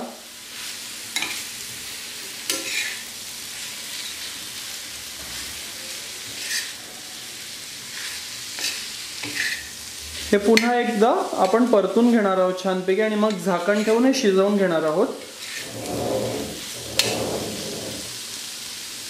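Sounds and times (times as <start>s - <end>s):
food sizzling on iron pan: 0.0s - 19.0s
metal spatula scraping pan: 15.4s - 18.2s.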